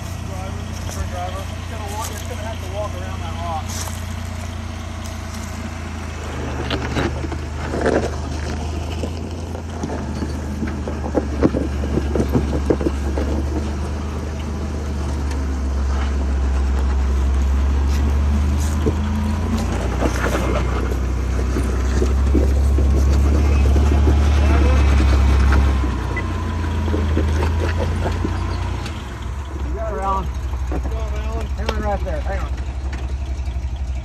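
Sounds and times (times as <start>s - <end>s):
engine running at low revs: 0.0s - 34.0s
tyres knocking against rock: 6.7s - 14.6s, 18.0s - 29.1s.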